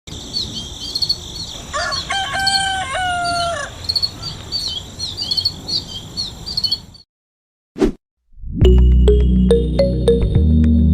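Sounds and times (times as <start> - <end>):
small birds chirping: 0.1 - 7.1
rooster crowing: 1.7 - 4.4.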